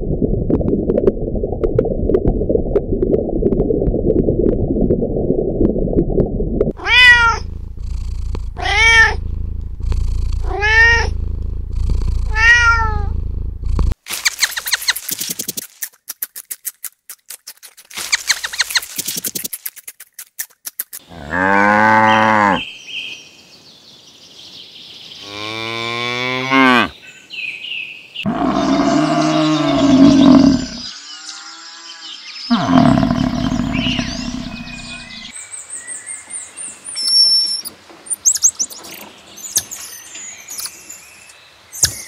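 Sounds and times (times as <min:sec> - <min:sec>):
rabbit crunching a carrot: 0:14.1 - 0:21.0
cow mooing: 0:21.1 - 0:22.6, 0:25.3 - 0:26.9, 0:28.3 - 0:30.9, 0:32.5 - 0:35.2
birds chirping: 0:25.2 - 0:42.0.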